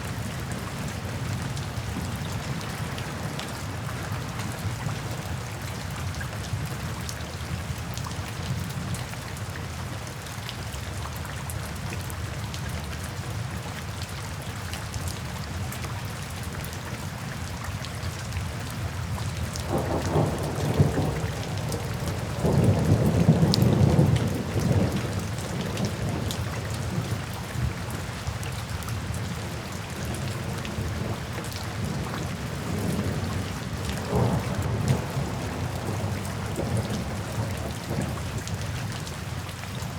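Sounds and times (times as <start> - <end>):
steady rain falling: 0.0 - 39.9
thunder rumbling: 19.6 - 28.0, 30.3 - 38.6.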